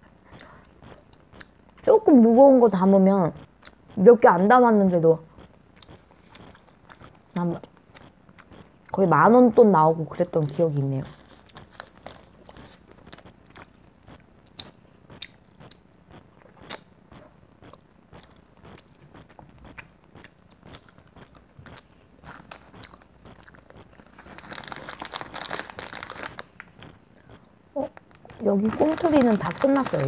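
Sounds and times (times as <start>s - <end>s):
chewing sweets: 0.0s - 30.0s
plastic candy packet crinkling: 11.0s - 14.7s, 19.3s - 30.0s.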